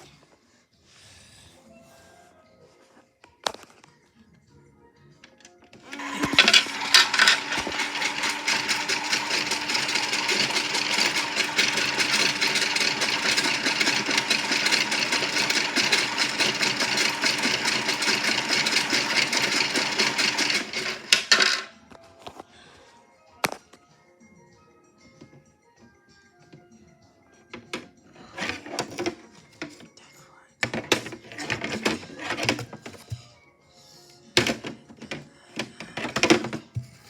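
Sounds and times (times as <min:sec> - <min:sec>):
toy motor rattling: 0:05.8 - 0:21.7, 0:28.2 - 0:29.9, 0:30.6 - 0:33.2.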